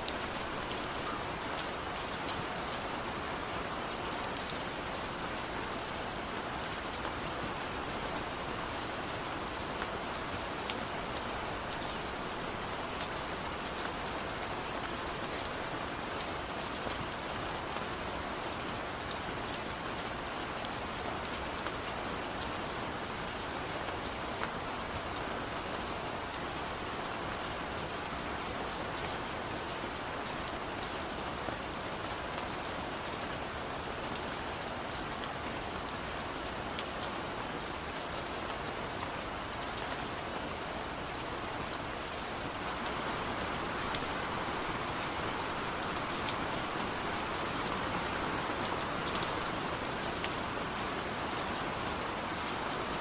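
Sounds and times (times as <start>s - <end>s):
rain hissing: 41.8s - 51.2s.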